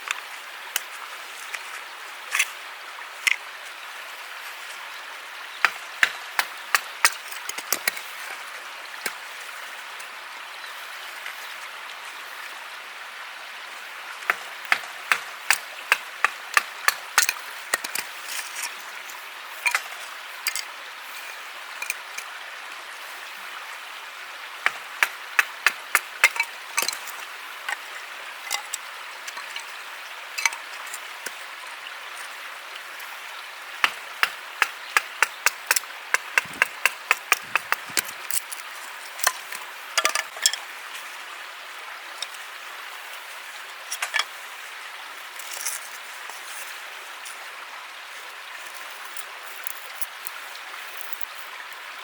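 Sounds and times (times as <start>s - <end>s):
sharp taps or clicks: 35.0s - 38.1s.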